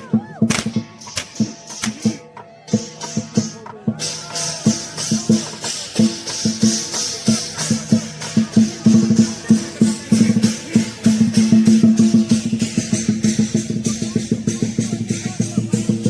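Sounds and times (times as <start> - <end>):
big drum beating: 0.1 - 3.9
cymbals clashing: 0.4 - 16.0.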